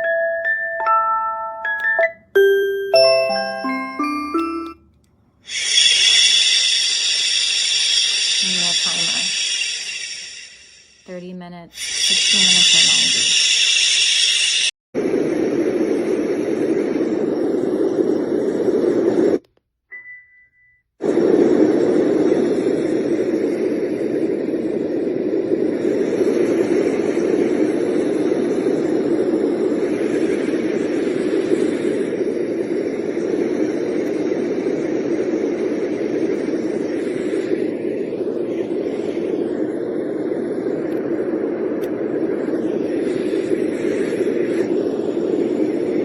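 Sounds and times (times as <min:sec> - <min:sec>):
noise machine rushing noise: 0:01.8 - 0:19.5, 0:21.0 - 0:46.0.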